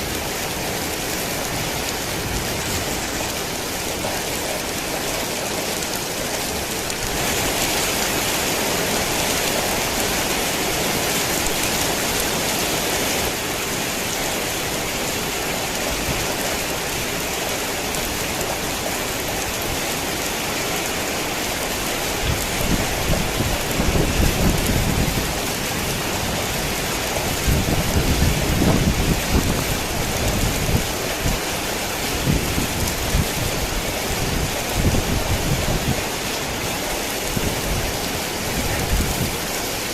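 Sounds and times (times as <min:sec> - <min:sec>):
heavy rain falling: 0:00.0 - 0:39.9
thunder rumbling: 0:21.9 - 0:36.3.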